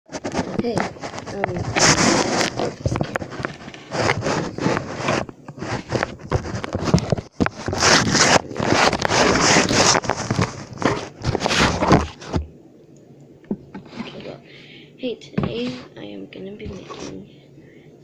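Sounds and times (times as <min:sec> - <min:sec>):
scraping and rustling: 0:00.1 - 0:12.5, 0:13.6 - 0:14.4, 0:16.6 - 0:17.3.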